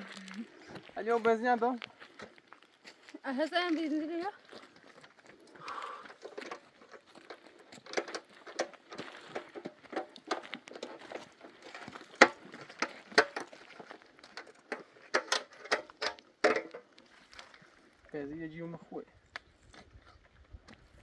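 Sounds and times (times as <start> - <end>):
clatter of hard objects: 6.0 - 16.9.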